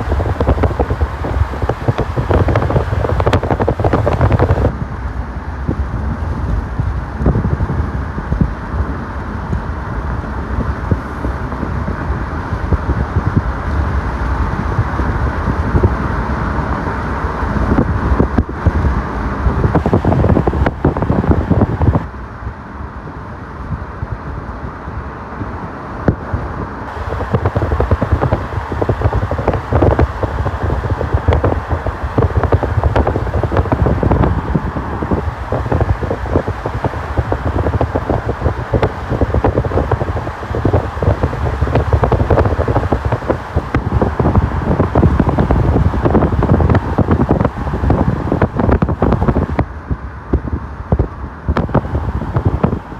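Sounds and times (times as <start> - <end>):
wind buffeting microphone: 0.0 - 4.8, 17.6 - 22.2, 26.9 - 52.9
vehicle rumble: 0.0 - 22.2, 26.2 - 52.9.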